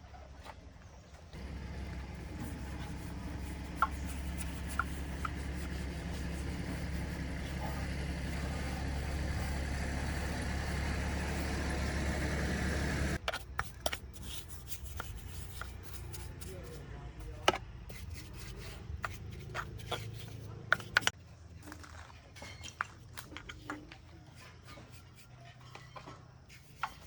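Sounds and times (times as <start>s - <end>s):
motor humming: 1.4s - 13.2s.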